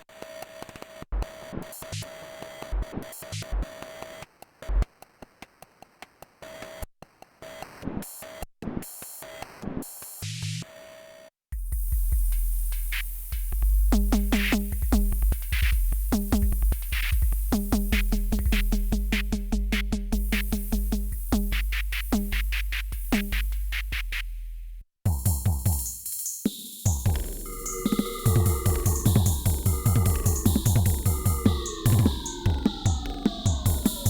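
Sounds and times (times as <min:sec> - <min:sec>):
electronic drum hits: 0:26.9 - 0:34.0
cymbal-like ticks: 0:27.0 - 0:34.0.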